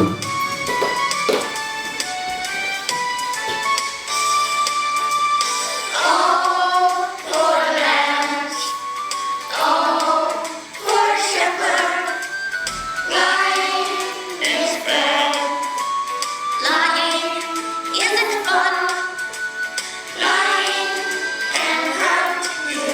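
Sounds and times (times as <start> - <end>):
instrumental backing track: 0.0 - 22.9
children singing: 5.7 - 22.9.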